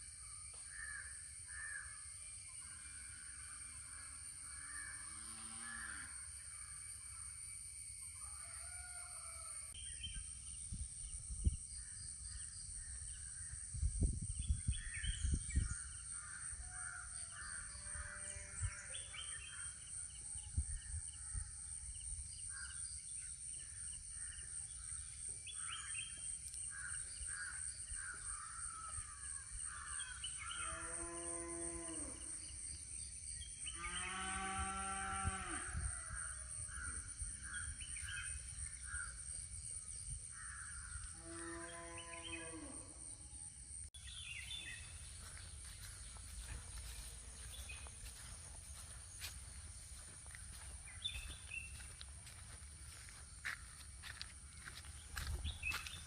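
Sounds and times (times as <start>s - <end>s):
high insect drone: 0.0s - 56.0s
crows cawing: 0.7s - 2.0s
birds calling: 44.0s - 56.0s.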